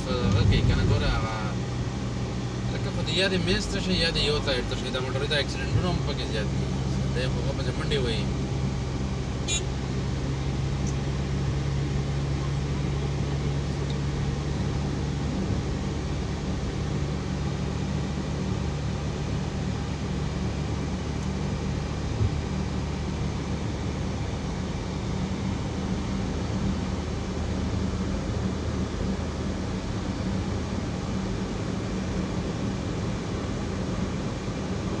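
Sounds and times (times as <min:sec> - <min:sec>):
vehicle engine hum: 0:00.0 - 0:35.0.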